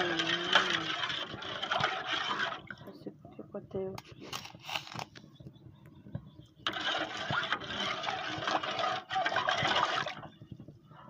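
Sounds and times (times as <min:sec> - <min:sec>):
hot water pouring: 0:00.0 - 0:02.8, 0:06.7 - 0:10.4.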